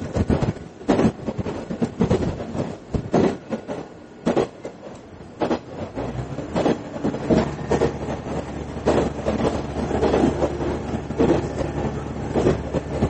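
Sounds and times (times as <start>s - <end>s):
train wheels knocking over rail joints: 0.0s - 13.0s
low engine drone: 6.0s - 13.0s.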